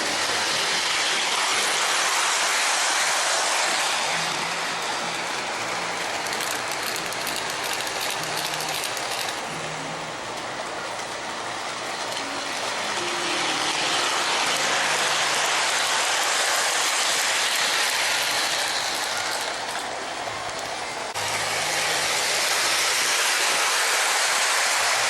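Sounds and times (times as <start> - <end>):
model train clattering on track: 4.8 - 9.5, 15.4 - 20.8.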